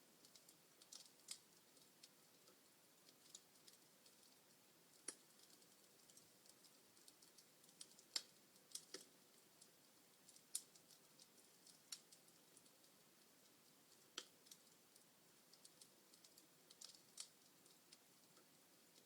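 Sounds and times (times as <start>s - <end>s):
log fire crackling faintly: 0.0s - 19.0s.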